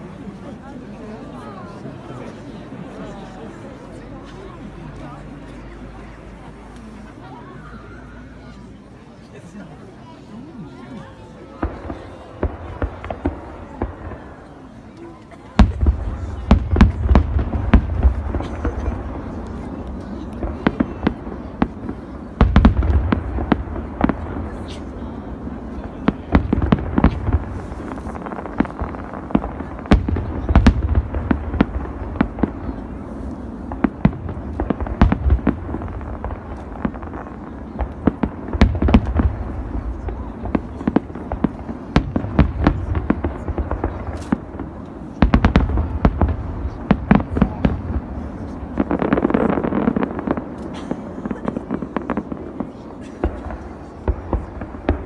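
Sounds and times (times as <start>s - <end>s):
fireworks crackling: 10.2s - 55.0s
fireworks booming: 11.2s - 55.0s.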